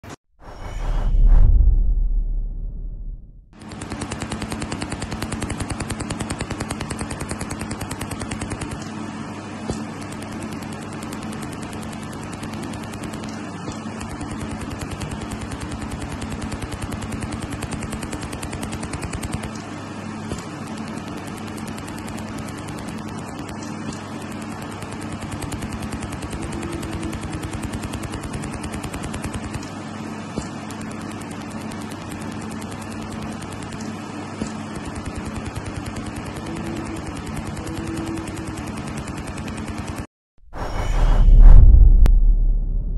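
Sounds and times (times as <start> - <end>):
machine hum: 0.4 - 15.2, 34.9 - 42.9
fast even clicking: 3.6 - 9.0
laser welder rapid ticking: 3.6 - 40.1.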